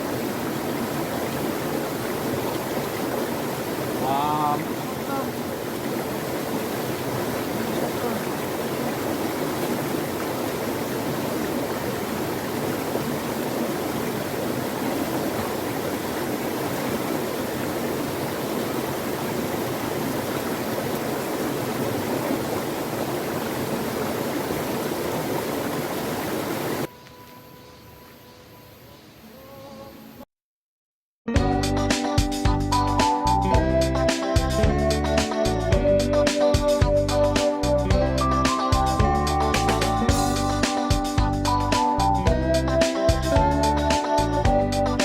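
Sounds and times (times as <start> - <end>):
stream rushing over rocks: 0.0 - 26.9.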